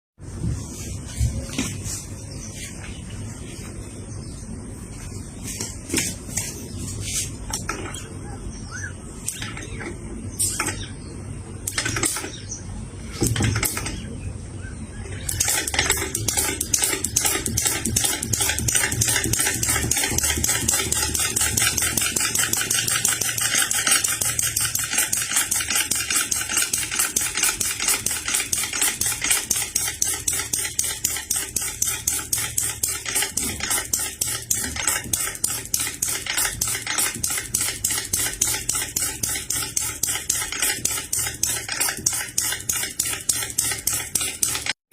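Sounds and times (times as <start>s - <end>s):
model engine metallic clatter: 11.6s - 12.4s, 13.2s - 14.1s, 15.3s - 44.8s.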